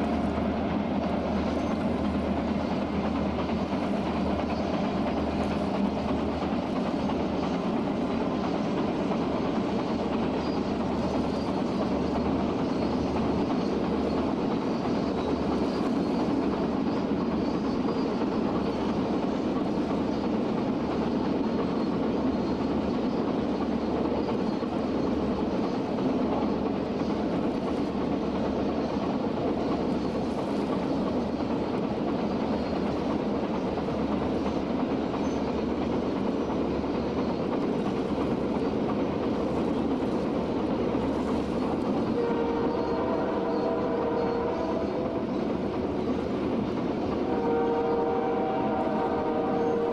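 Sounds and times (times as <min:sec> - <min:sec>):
freight train rumbling past: 0:00.0 - 0:49.9
locomotive air horn: 0:42.2 - 0:45.2, 0:47.2 - 0:49.9.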